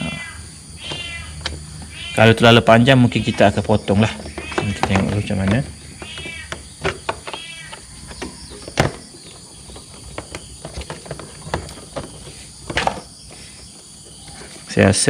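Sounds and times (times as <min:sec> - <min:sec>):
insect drone: 0:00.0 - 0:15.0
hands handling hose fittings: 0:03.1 - 0:13.4.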